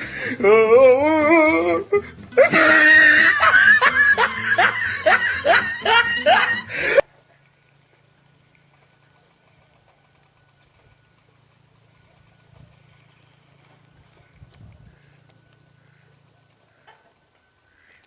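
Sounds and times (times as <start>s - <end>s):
exaggerated laughter: 0.0s - 7.0s.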